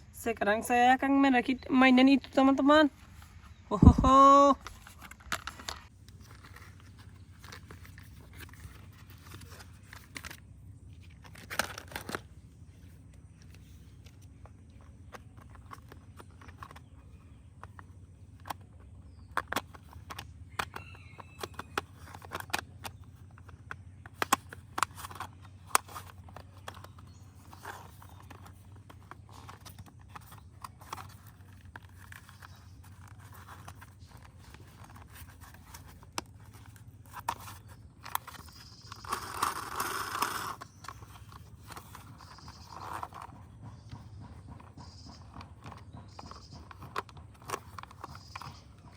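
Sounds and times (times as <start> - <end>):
plastic parts clicking and knocking: 3.1 - 48.9.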